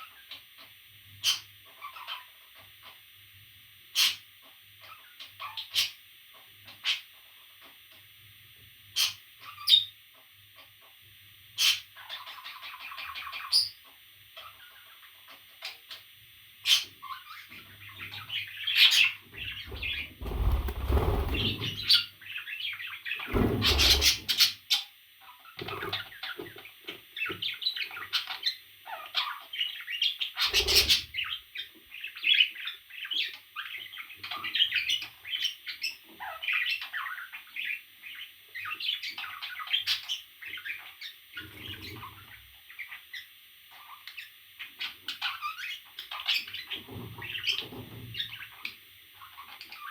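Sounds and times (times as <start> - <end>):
parrot chirping: 18.9 - 22.0
wings flapping: 19.5 - 22.0, 23.3 - 24.4.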